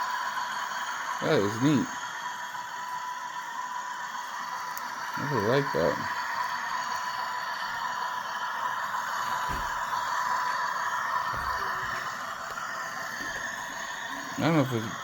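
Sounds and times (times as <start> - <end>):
model train running: 0.0 - 15.0
soft low thumps: 9.3 - 9.9.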